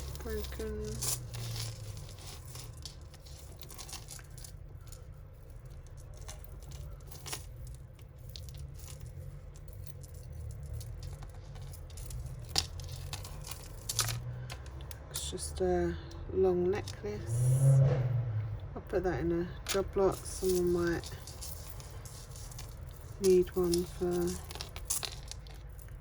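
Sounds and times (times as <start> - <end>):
jewellery clicking and clinking: 0.0 - 17.6, 19.4 - 26.0
rustling: 0.0 - 18.6, 19.3 - 26.0
low hum: 16.0 - 19.0.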